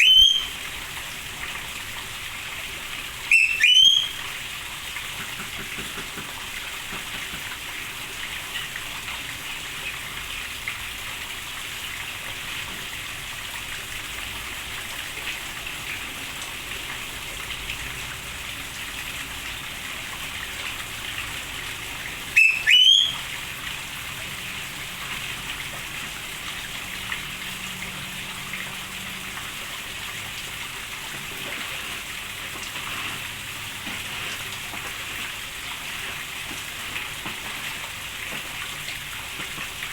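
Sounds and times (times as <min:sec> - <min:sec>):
loud rising whistle: 0:00.0 - 0:00.6, 0:03.3 - 0:04.2, 0:22.4 - 0:23.2
steady rain: 0:00.0 - 0:39.9.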